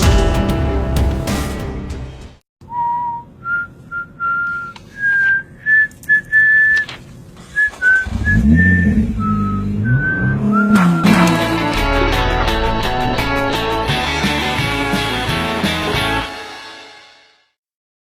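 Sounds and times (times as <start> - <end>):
music: 0.0 - 2.4, 11.0 - 17.6
person whistling a tune: 2.7 - 6.8, 7.6 - 11.3
low rising and falling tone: 8.0 - 15.5.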